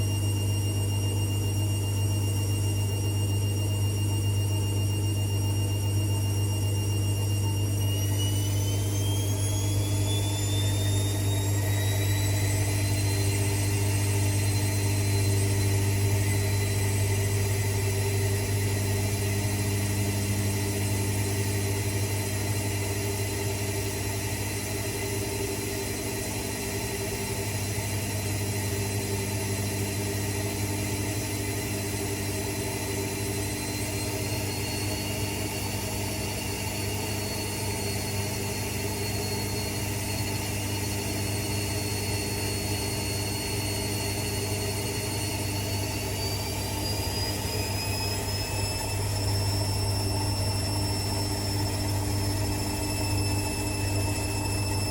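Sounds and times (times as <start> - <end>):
high whine rising in pitch: 6.6 - 54.9
electric machine humming: 7.2 - 54.9.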